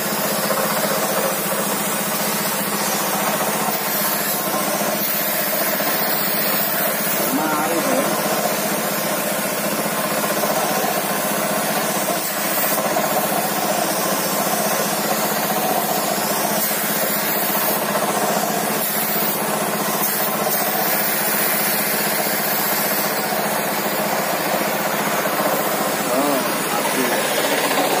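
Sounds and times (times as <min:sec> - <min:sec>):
motor humming: 0:00.0 - 0:13.8, 0:16.6 - 0:28.0.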